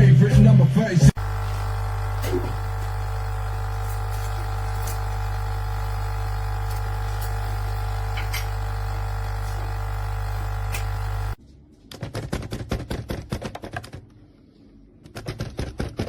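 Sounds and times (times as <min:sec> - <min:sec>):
coffee machine pump buzzing: 0:01.1 - 0:11.4.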